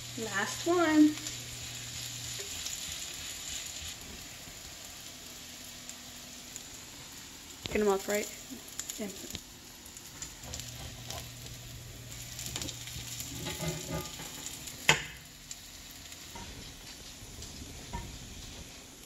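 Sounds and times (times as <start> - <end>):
fritters sizzling in oil: 0.0 - 19.0
metal spatula scraping pan: 13.2 - 14.6.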